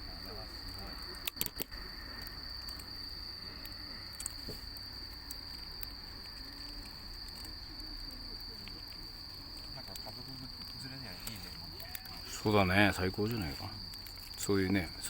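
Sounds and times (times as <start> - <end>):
insects trilling: 0.0 - 15.0
sharp clicks: 0.5 - 12.3.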